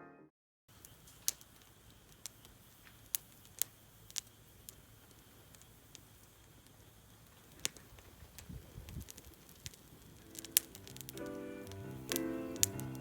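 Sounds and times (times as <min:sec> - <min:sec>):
wood fire crackling: 0:00.7 - 0:13.0.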